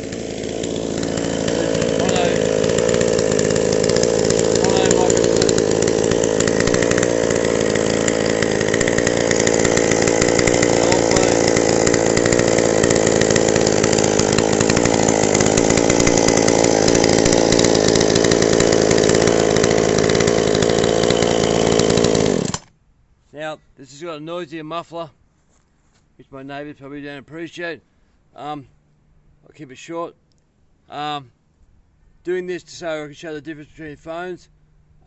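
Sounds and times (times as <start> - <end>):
two-stroke chainsaw running: 0.0 - 22.7.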